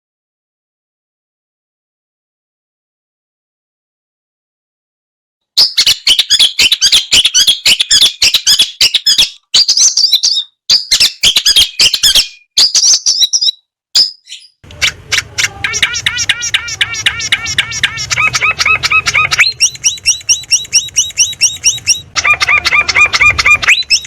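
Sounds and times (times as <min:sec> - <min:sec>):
bird singing harsh rapid notes: 0:05.6 - 0:24.0.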